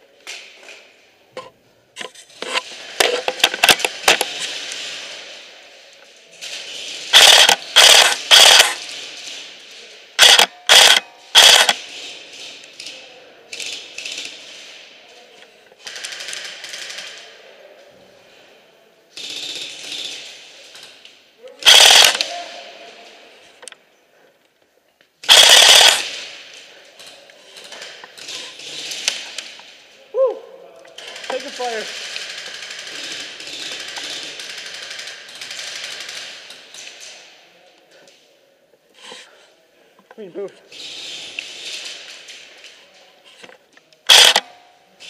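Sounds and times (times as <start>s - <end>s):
airsoft rifle bursts: 7.1s - 8.9s, 10.2s - 11.8s, 21.6s - 22.3s, 25.2s - 26.4s, 44.1s - 44.5s.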